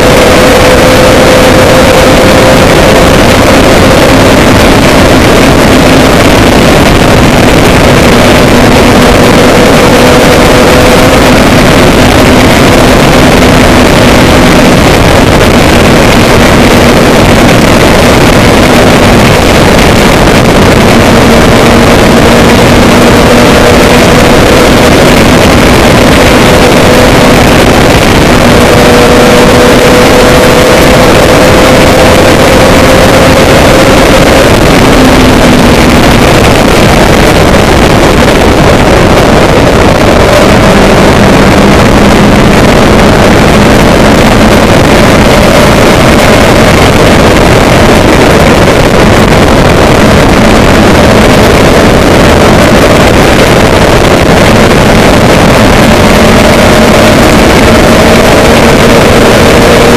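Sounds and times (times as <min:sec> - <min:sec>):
loud rushing noise: 0:00.0 - 0:59.9
vehicle engine droning: 0:00.0 - 0:59.9.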